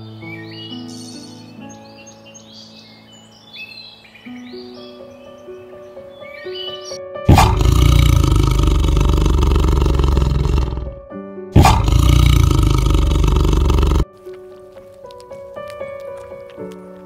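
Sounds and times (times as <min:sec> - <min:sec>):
soft background music: 0:00.0 - 0:17.0
tiger roaring: 0:07.3 - 0:11.0, 0:11.6 - 0:14.0.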